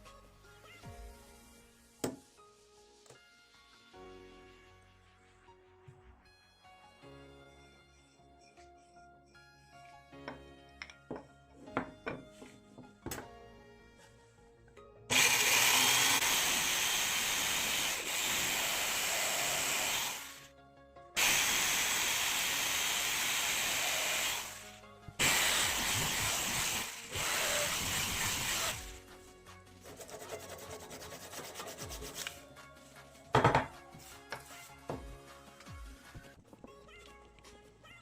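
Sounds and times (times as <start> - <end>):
soft background music: 0.0 - 15.1, 20.2 - 38.0
power tool working wood: 15.1 - 20.5, 21.2 - 29.0.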